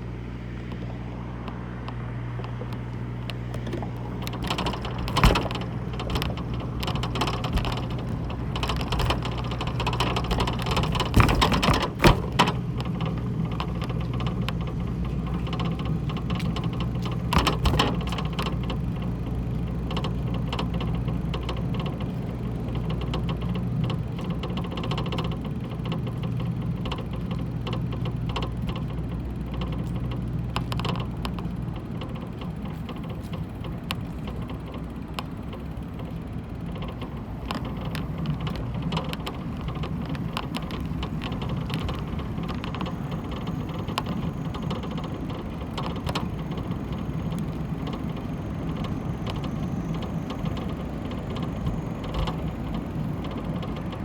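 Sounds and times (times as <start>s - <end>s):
low mechanical hum: 0.0s - 54.0s
clicks: 0.6s - 54.0s
rustling: 3.5s - 34.9s.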